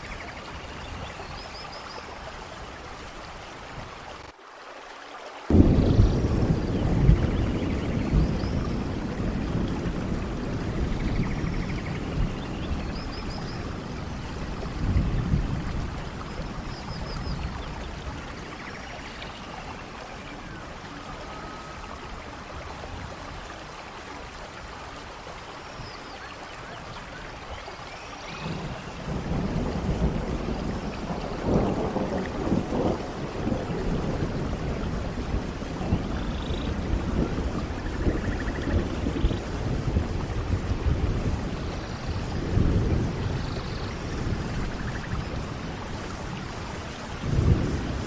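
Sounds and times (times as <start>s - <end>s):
heavy rain: 0.0s - 48.0s
thunder rumbling: 5.5s - 23.6s, 28.3s - 48.0s.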